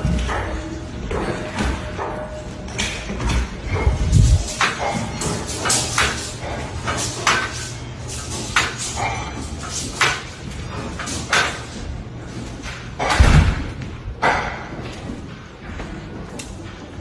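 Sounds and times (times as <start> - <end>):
doors and cupboards rattling: 0.0 - 17.0
low rumble: 3.6 - 4.5.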